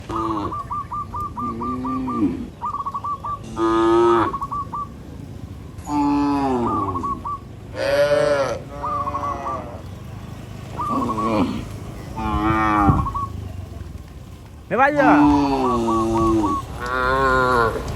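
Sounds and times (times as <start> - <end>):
cows mooing: 0.0 - 2.5, 3.4 - 4.5, 5.8 - 7.0, 7.7 - 13.5, 14.9 - 17.9.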